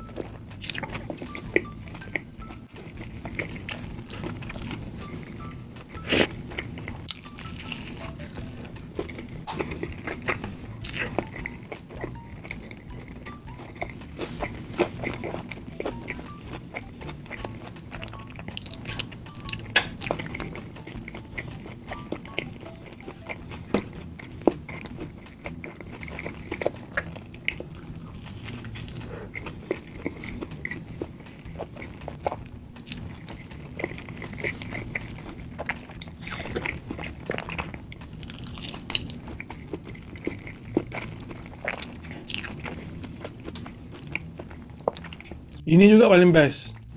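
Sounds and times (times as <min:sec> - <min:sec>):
person chewing with crunches: 0:00.0 - 0:46.9.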